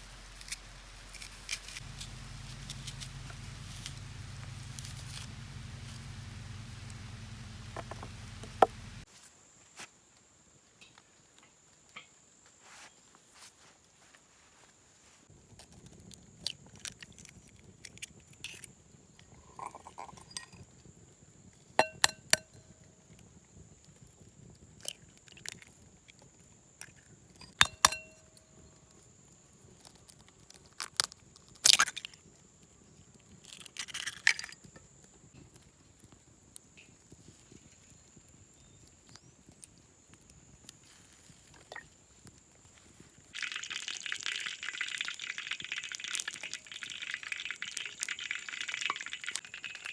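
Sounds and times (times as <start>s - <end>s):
steady hiss: 0.0s - 9.1s.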